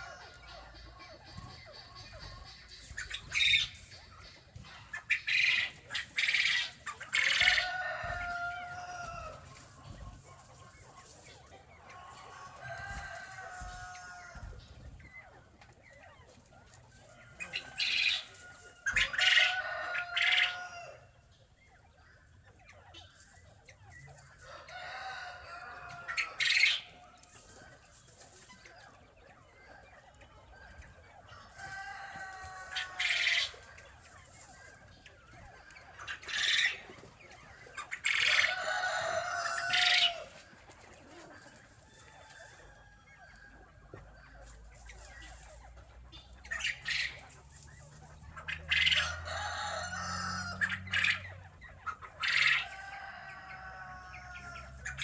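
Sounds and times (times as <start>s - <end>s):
chickens squawking: 0.0s - 55.0s
rooster crowing: 7.3s - 9.6s, 12.1s - 14.6s, 17.2s - 21.1s, 24.4s - 26.4s, 31.3s - 33.4s, 38.1s - 40.4s, 48.7s - 51.0s, 52.2s - 55.0s.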